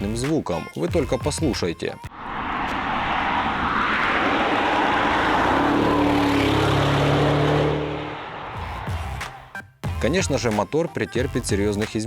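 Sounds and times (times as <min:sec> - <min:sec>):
road noise: 0:02.1 - 0:09.6
car engine under power: 0:03.1 - 0:08.6.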